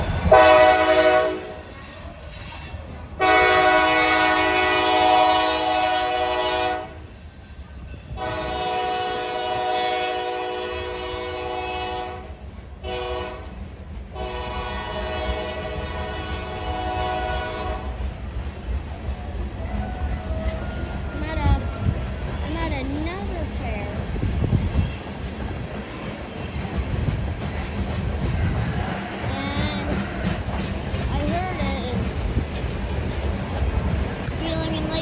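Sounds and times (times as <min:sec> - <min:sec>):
locomotive air horn blasts: 0:00.2 - 0:01.6, 0:03.2 - 0:07.0, 0:08.1 - 0:13.6, 0:14.2 - 0:18.0.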